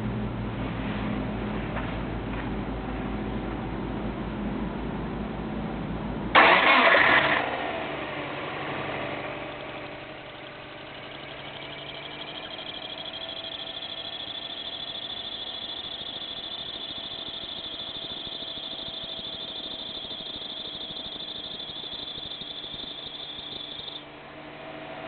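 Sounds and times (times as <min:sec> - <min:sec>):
car engine starting and idling: 0:06.3 - 0:24.0
thin high whine: 0:09.8 - 0:24.1.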